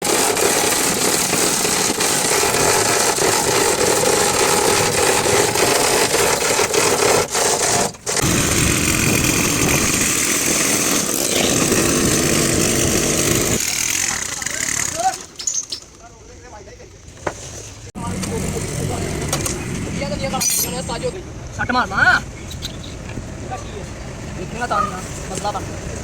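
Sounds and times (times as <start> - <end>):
loud mechanical noise: 0.0 - 15.3.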